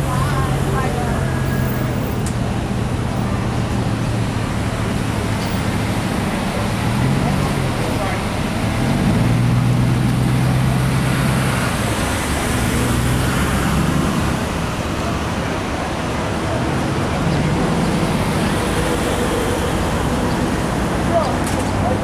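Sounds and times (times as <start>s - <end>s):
street noise: 0.0s - 22.0s
vehicle engine humming: 0.0s - 22.0s.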